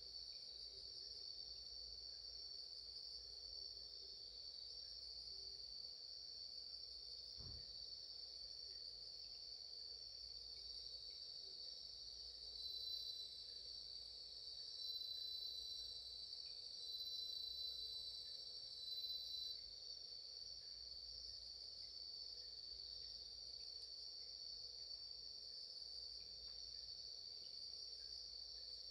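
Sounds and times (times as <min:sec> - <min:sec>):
crickets chirring: 0:00.0 - 0:28.9
loud insect trill: 0:00.0 - 0:28.9.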